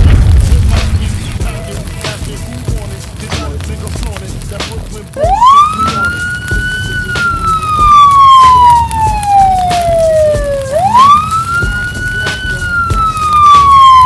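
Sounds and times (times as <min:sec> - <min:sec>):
emergency vehicle siren wailing: 0:05.0 - 0:14.0.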